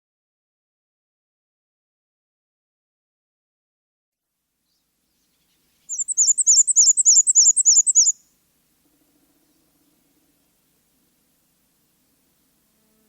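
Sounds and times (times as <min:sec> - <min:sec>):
songbird chirping: 0:04.6 - 0:12.5.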